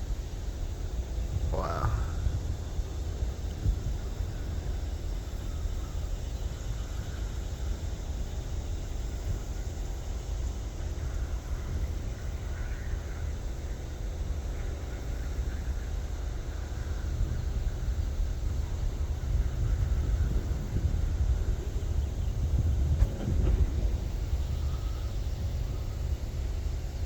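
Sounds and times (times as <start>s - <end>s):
wind buffeting microphone: 0.6s - 9.7s, 16.5s - 27.0s.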